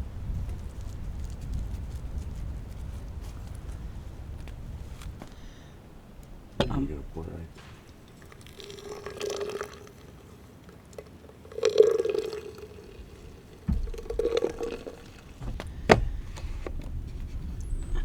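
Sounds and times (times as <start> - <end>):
liquid being poured: 7.6 - 15.8
low rumble: 13.7 - 18.0.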